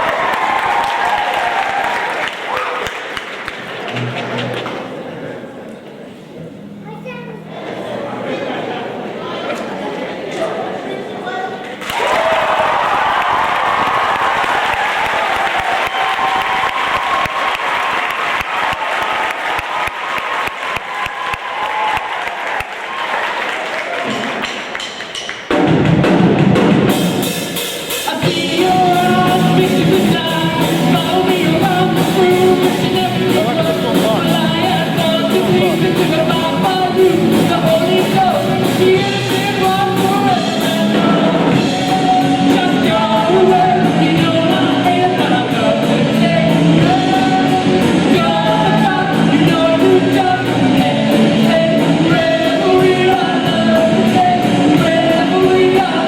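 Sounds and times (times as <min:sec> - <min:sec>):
drums: 0:00.0 - 0:05.1, 0:11.8 - 0:56.0
rock band playing: 0:24.2 - 0:56.0
person singing: 0:27.9 - 0:56.0.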